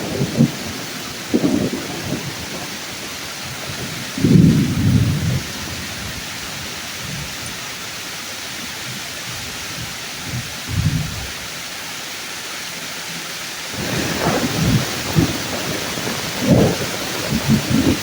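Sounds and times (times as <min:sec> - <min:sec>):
thunder rumbling: 0:00.0 - 0:07.3, 0:10.3 - 0:11.3, 0:13.7 - 0:18.0
heavy rain on leaves: 0:00.0 - 0:18.0.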